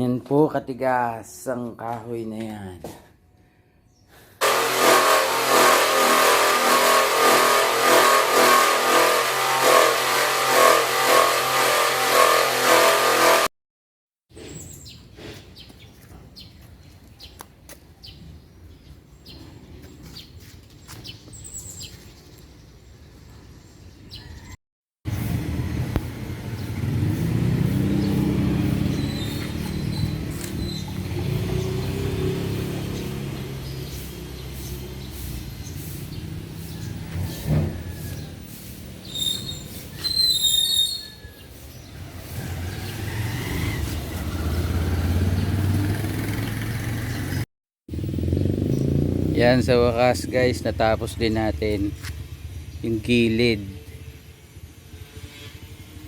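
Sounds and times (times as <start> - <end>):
electric power saw cutting timber: 4.4 - 13.5
motor revving: 4.4 - 13.5, 25.2 - 35.4
bird chirps: 27.8 - 31.9, 32.6 - 42.0.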